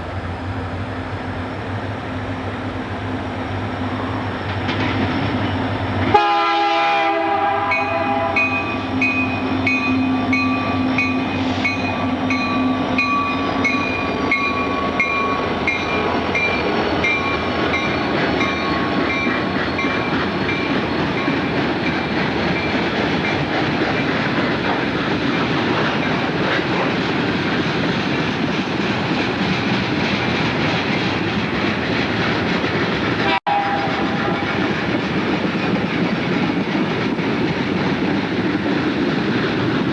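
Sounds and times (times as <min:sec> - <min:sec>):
train rolling past on rails: 0:00.0 - 0:39.9
train horn chord: 0:06.0 - 0:12.8, 0:33.2 - 0:34.6.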